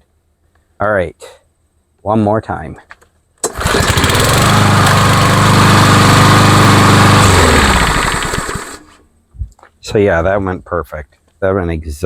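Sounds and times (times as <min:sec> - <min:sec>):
lawnmower engine running: 0:03.4 - 0:09.0.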